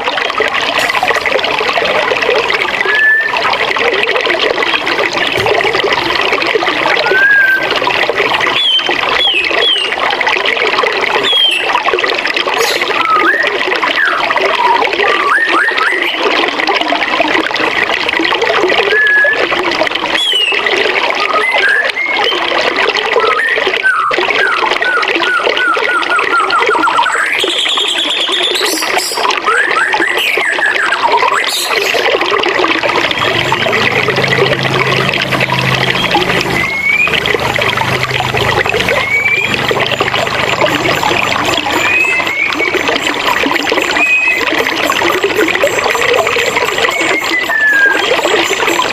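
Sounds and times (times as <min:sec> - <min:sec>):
birds singing: 0:07.1 - 0:10.0, 0:11.2 - 0:11.8, 0:25.2 - 0:32.0, 0:33.1 - 0:48.9.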